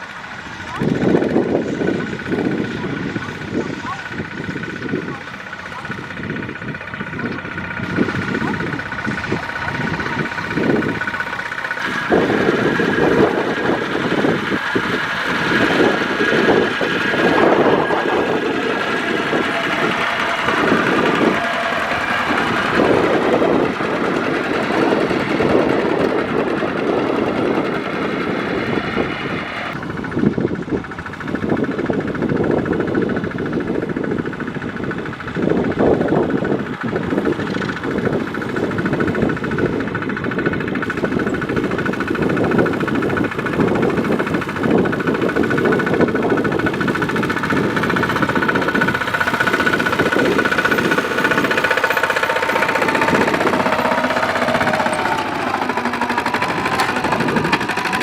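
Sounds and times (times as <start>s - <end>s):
combine harvester machinery running: 0.0s - 58.0s.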